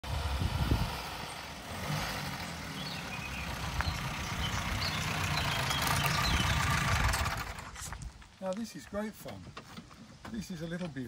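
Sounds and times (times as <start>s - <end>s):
small car engine running slowly: 0.0s - 8.0s.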